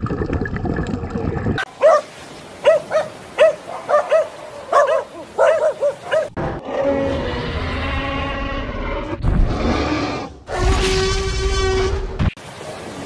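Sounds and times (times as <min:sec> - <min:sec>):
animal yapping calls: 0:01.8 - 0:06.3.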